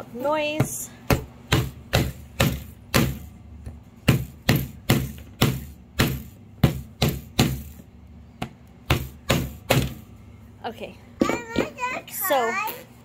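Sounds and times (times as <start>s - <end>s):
hammer striking nails into wood: 1.1s - 3.3s, 4.0s - 7.8s, 8.4s - 10.0s.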